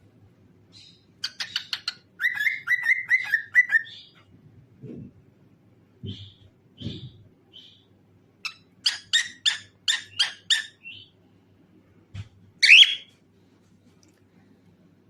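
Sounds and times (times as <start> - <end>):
cockatiel chirping: 0.8 - 4.2, 8.4 - 11.1, 12.6 - 13.1.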